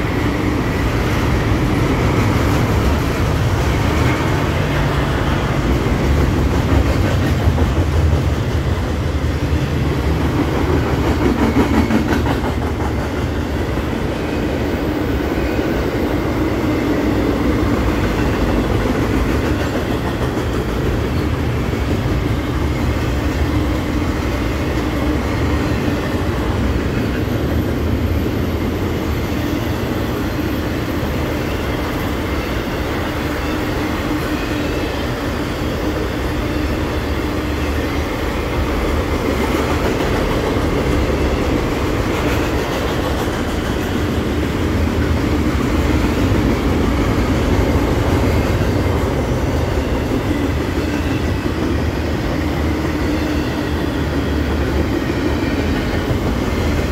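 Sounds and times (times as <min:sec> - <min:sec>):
wheels clacking over rail joints: 0:00.0 - 0:28.3
train wheels rumbling on rails: 0:00.0 - 0:56.9.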